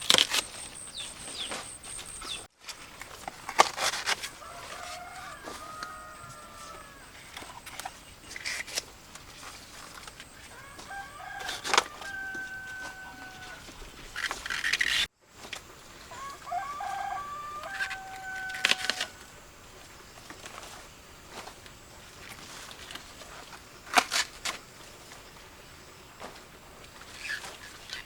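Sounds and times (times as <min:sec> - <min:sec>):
rooster crowing: 0:04.2 - 0:07.2, 0:10.4 - 0:13.7, 0:16.1 - 0:19.4.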